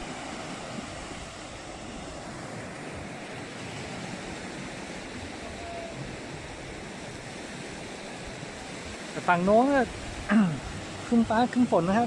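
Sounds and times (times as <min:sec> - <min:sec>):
surf washing onto beach: 0:00.0 - 0:12.0
wind buffeting microphone: 0:00.0 - 0:12.0.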